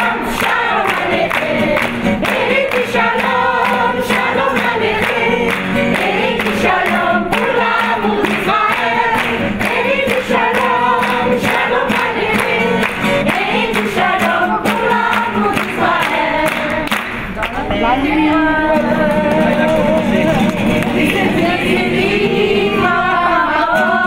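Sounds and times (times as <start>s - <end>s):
choir singing: 0.0s - 16.9s, 17.8s - 24.0s.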